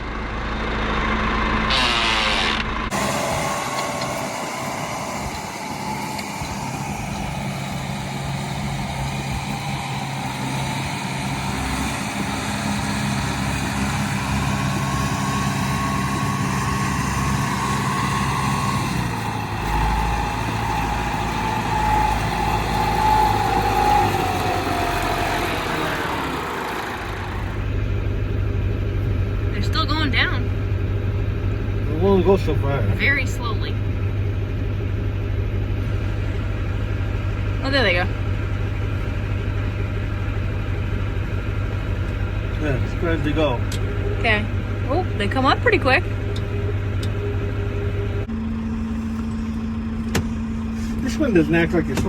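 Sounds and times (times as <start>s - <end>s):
high-pitched whine: 0.0s - 10.3s
tractor diesel engine running: 0.0s - 52.0s.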